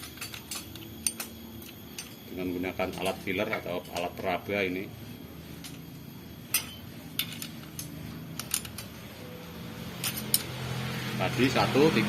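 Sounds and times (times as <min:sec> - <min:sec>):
hand tools clicking on metal: 0:00.0 - 0:02.2, 0:02.8 - 0:04.2, 0:06.5 - 0:09.0.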